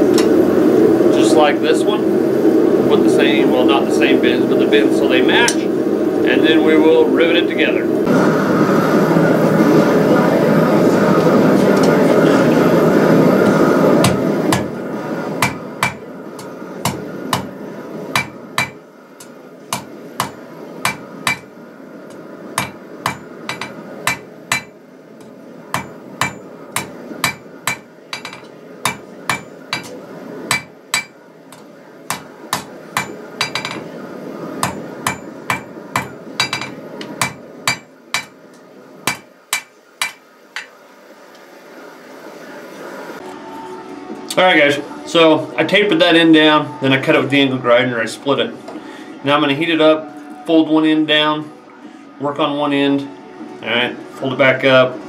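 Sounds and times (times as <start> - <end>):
hammer clanging on anvil: 18.2 - 18.8, 19.7 - 21.5, 22.6 - 24.7, 25.7 - 33.9, 34.6 - 38.4.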